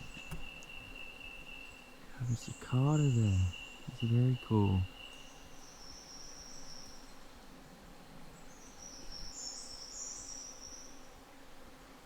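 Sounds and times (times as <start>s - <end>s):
shrill insect trills: 0.0s - 7.2s.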